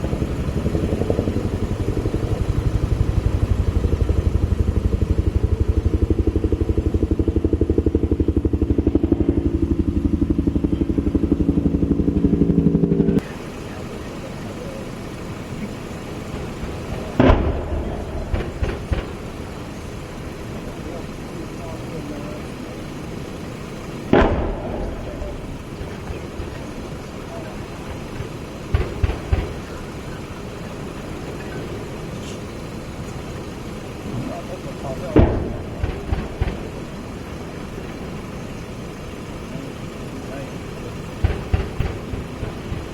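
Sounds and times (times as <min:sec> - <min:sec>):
helicopter engine tone: 0:00.0 - 0:42.9
helicopter rotor beating: 0:00.0 - 0:42.9
steady low rumble: 0:00.0 - 0:42.9
gunshots: 0:16.4 - 0:19.6, 0:24.1 - 0:30.1, 0:35.0 - 0:37.0, 0:41.2 - 0:42.9.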